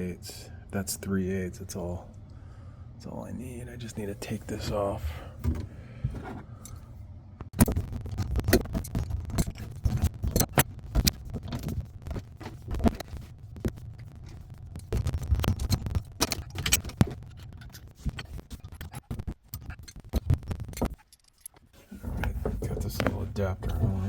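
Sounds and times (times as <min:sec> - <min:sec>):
plumbing fittings clicking and scraping: 0:07.6 - 0:24.0.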